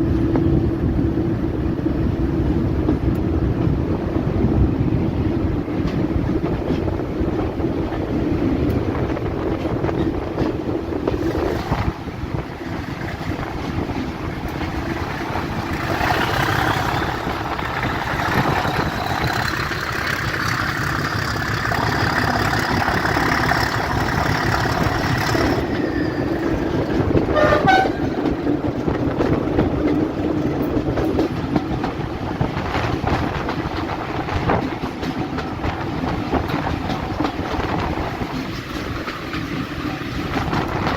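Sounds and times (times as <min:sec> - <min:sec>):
locomotive engine drone: 0:00.0 - 0:32.6
locomotive horn: 0:27.1 - 0:28.4.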